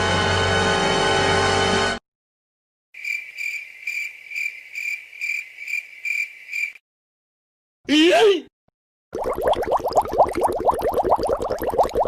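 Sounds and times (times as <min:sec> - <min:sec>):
crickets chirping: 0:03.0 - 0:06.8.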